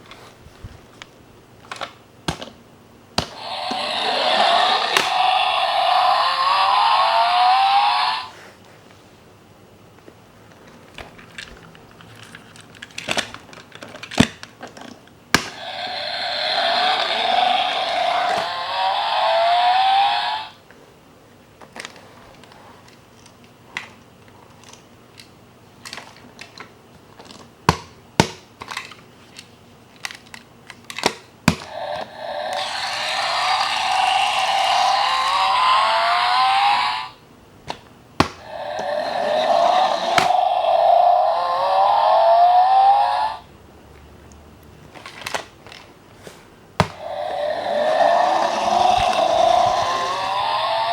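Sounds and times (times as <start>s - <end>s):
toy car engine revving effect: 3.2s - 8.4s, 15.5s - 20.6s, 31.7s - 37.2s, 38.4s - 43.4s, 47.0s - 50.9s.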